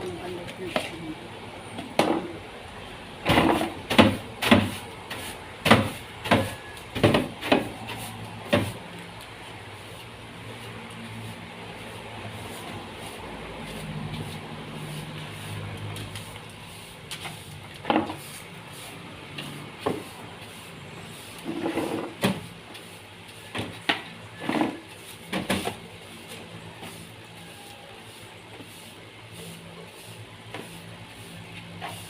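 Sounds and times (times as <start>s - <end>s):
low engine hum: 7.6s - 21.3s.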